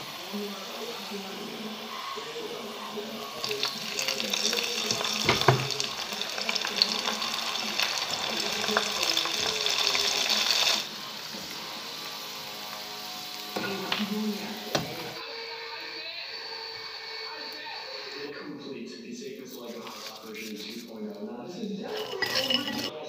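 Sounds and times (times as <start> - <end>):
food sizzling in hot oil: 0.0 - 15.2, 21.9 - 22.9.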